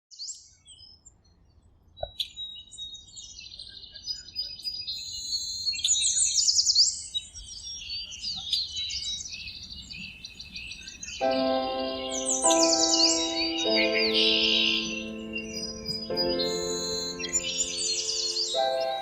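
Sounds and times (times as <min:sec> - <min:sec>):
birds chirping and singing: 0:07.3 - 0:19.0.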